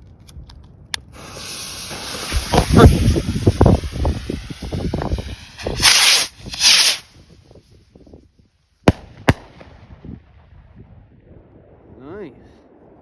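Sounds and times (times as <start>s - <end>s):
firework rockets whooshing: 1.0s - 8.2s, 8.8s - 10.0s
firework bangs: 1.1s - 7.3s, 8.9s - 10.2s.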